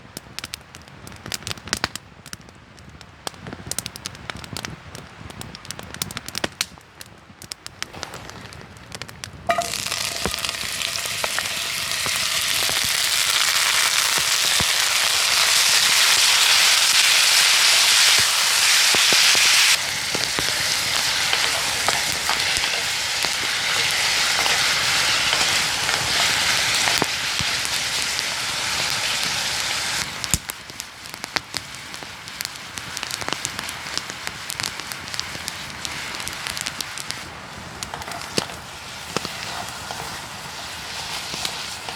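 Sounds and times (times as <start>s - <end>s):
wood fire crackling: 0.0s - 41.9s
food sizzling in hot pan: 9.5s - 41.9s.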